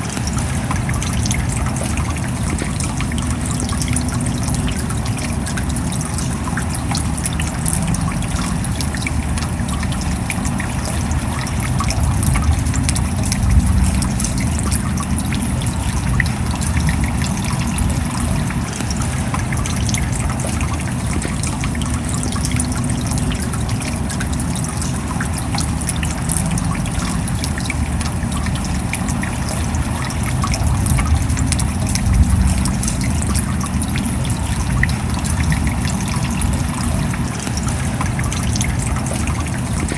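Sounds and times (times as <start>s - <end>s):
rain patter: 0.0s - 39.9s
low rumble: 7.6s - 20.4s, 26.2s - 39.1s.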